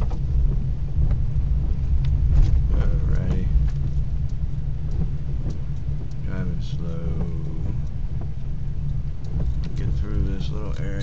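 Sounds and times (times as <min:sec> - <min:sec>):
light ticks: 0:00.0 - 0:11.0
truck engine and road rumble: 0:00.0 - 0:11.0.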